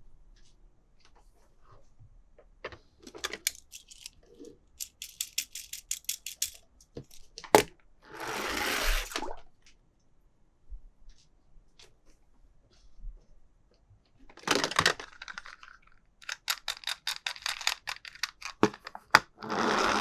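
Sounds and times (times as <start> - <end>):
packaging rustling: 3.1 - 4.1, 7.6 - 9.2
toy cars clicking: 3.1 - 4.2, 4.8 - 9.2, 16.2 - 18.9.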